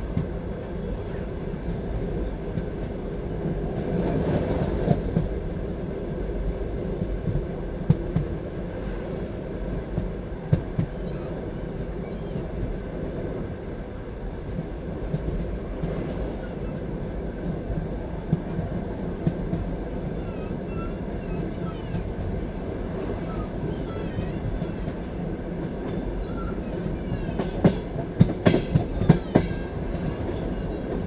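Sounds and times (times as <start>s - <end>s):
train wheels rumbling on track: 0.0s - 31.0s
wheels knocking on rail joints: 25.8s - 31.0s.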